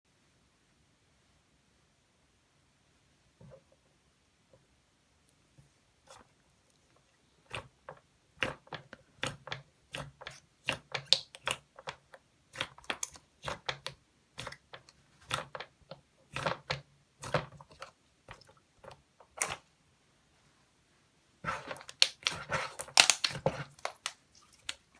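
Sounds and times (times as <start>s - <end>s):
crisp crunching: 21.5s - 24.9s.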